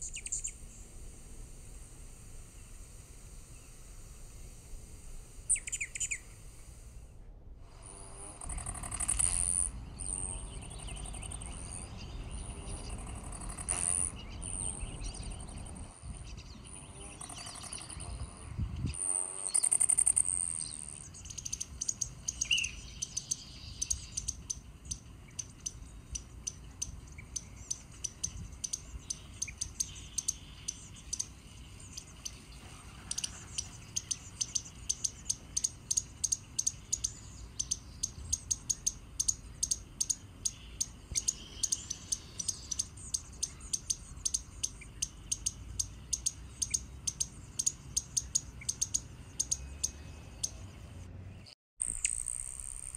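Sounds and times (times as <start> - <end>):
small birds calling: 0.0 - 0.8, 5.4 - 7.1, 7.8 - 52.2.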